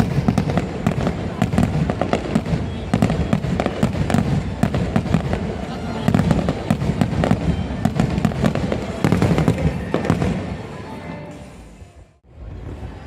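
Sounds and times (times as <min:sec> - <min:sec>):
fireworks bangs and crackling: 0:00.0 - 0:12.8
music playing: 0:08.6 - 0:12.8.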